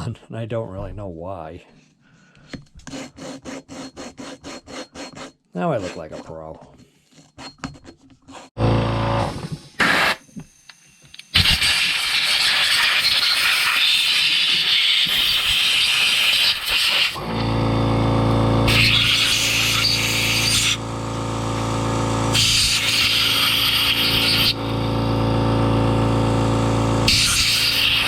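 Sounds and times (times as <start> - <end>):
power tool motor hum: 8.6 - 28.0.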